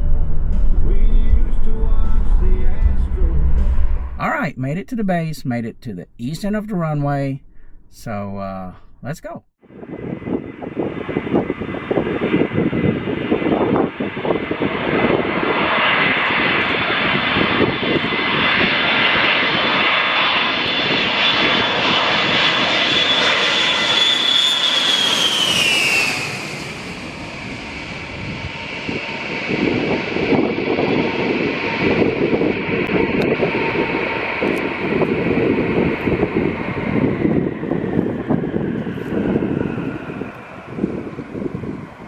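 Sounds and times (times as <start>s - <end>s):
wind buffeting microphone: 9.6s - 19.8s, 27.4s - 42.0s
jet engines whining: 9.7s - 42.0s.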